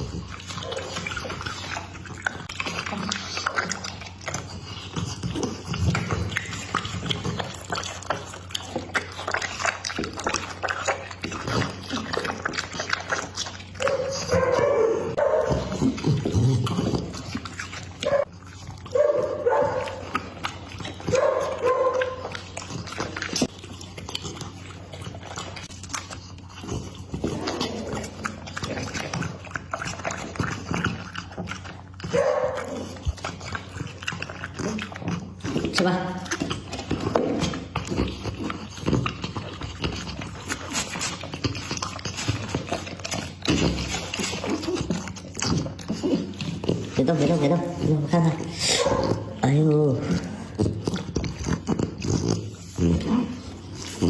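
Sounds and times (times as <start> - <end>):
teeth clicking: 0.0 - 14.6
dog chewing meat: 0.0 - 54.0.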